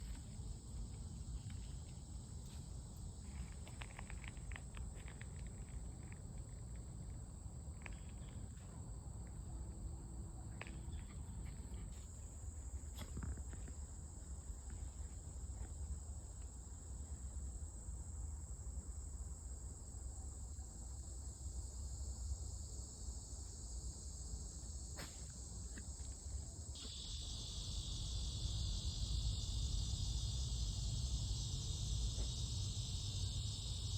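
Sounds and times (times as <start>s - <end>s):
insects trilling: 10.6s - 33.9s
lower insect trill: 10.6s - 33.9s.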